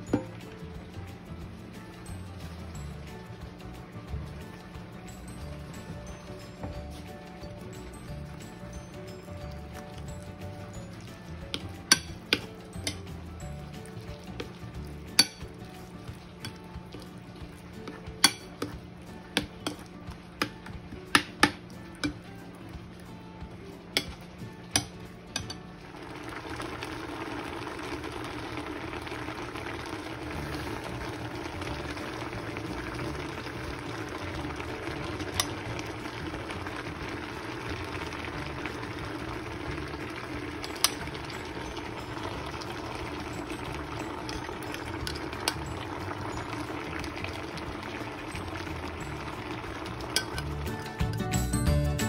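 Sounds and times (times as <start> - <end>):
pot simmering with bubbling hiss: 0.0 - 52.0
spoon clinking against pot: 11.4 - 13.2, 13.9 - 17.1, 17.8 - 22.3, 24.0 - 25.7, 40.5 - 41.9, 43.4 - 45.7, 50.0 - 51.4.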